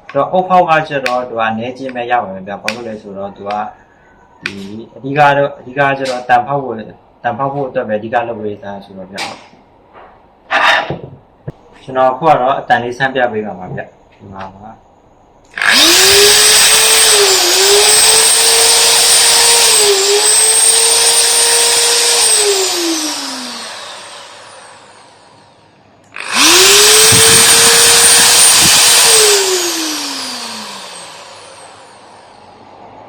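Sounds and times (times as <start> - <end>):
impact drill motor whining: 15.5 - 25.5, 26.1 - 32.5.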